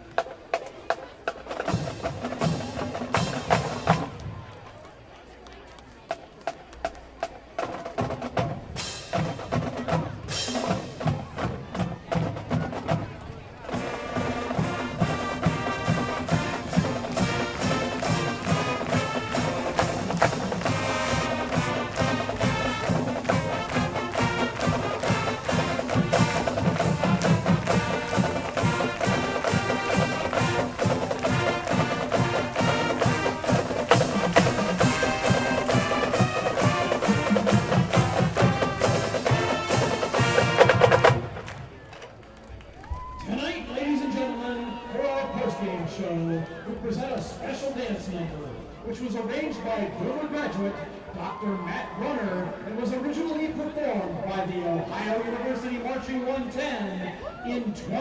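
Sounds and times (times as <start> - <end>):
drumline beat: 0.0 - 4.6, 6.8 - 42.1
brass and winds playing: 13.7 - 41.8.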